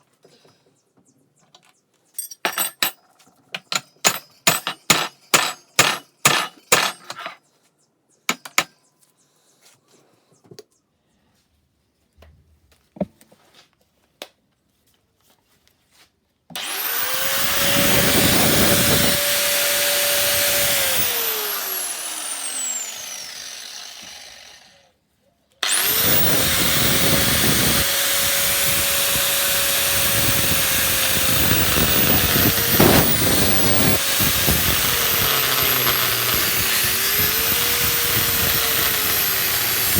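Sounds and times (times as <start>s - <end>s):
metal clinks and taps: 2.2s - 7.4s
angle grinder grinding metal: 16.6s - 24.8s, 25.6s - 39.9s.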